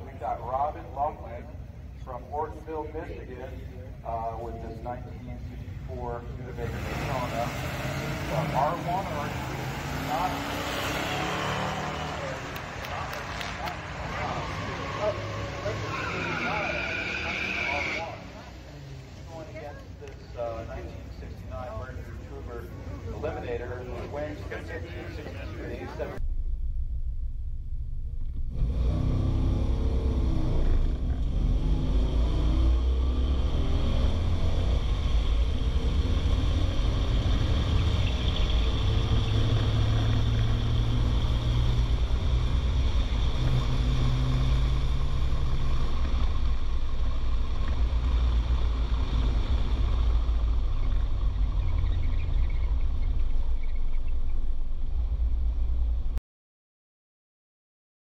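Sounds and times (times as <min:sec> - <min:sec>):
car engine accelerating hard: 0:06.2 - 0:19.4, 0:28.3 - 0:56.2.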